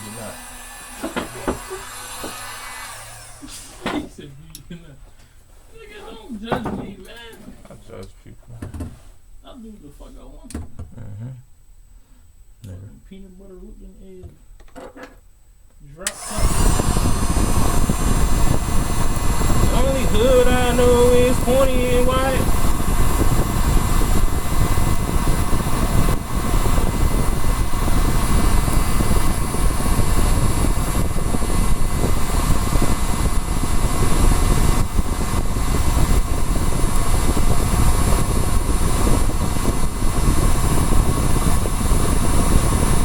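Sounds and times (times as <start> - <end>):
heat gun blowing hot air: 0.0 - 4.0, 16.1 - 43.0.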